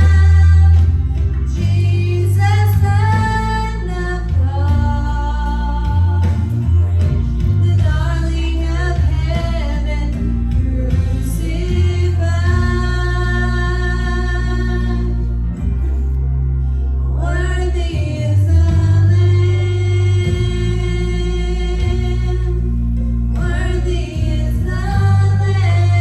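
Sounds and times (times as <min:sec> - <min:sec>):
bass accompaniment: 0:00.0 - 0:26.0
voices singing worship music: 0:00.0 - 0:26.0.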